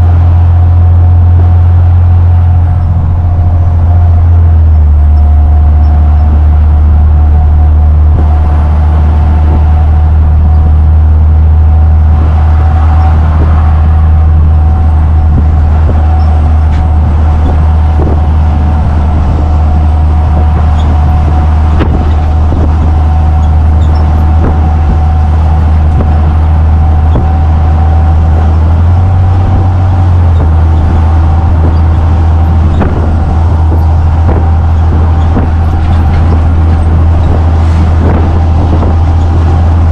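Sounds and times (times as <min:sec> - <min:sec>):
thin steady whine: 0:00.0 - 0:39.9
truck engine and road drone: 0:00.0 - 0:39.9.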